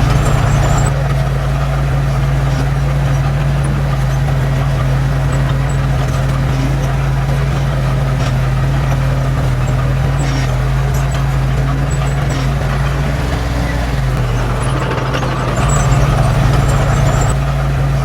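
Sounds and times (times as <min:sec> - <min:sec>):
diesel engine humming: 0:00.0 - 0:18.0.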